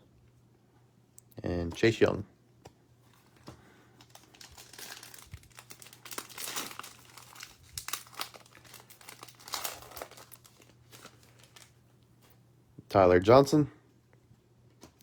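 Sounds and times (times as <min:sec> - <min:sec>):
foil pack tearing and crinkling: 0:04.0 - 0:11.8.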